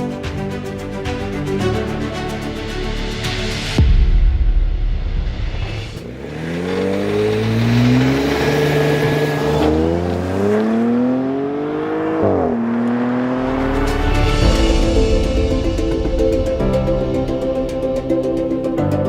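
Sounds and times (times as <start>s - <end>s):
car engine accelerating: 5.6s - 15.6s.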